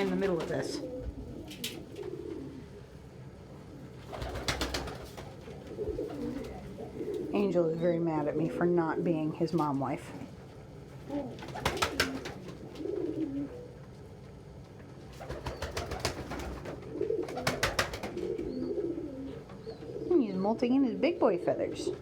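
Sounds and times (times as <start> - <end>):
pigeons cooing: 0.0 - 9.4, 10.6 - 14.0, 15.1 - 22.0.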